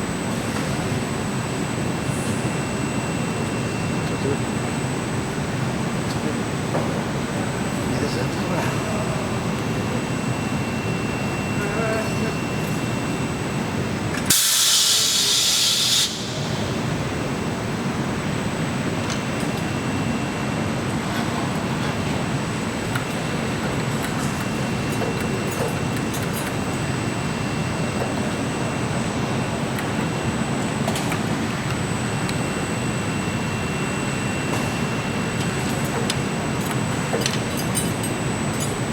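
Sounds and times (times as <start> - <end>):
factory machinery noise: 0.0 - 38.9
thin high whine: 7.9 - 20.5
loud hiss of air: 14.3 - 16.6.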